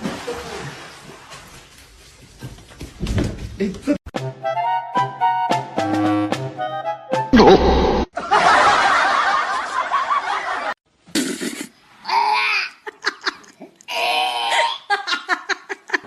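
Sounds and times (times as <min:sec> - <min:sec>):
people laughing: 0:08.2 - 0:10.8, 0:12.8 - 0:13.6, 0:14.9 - 0:16.0.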